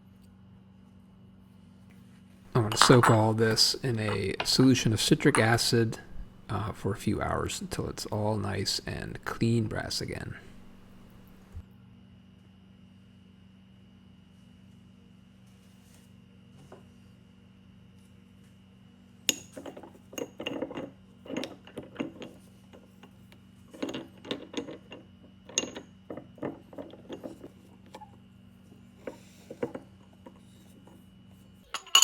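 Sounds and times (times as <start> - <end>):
metal parts and tools clicking: 19.4 - 27.6, 31.7 - 32.0.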